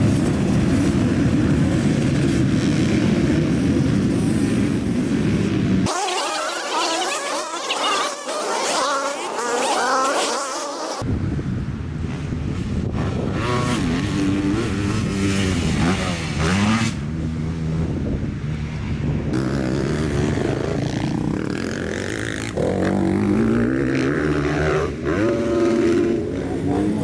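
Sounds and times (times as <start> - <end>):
dirt bike engine revving: 0.0 - 11.0, 12.9 - 18.0, 19.3 - 27.0.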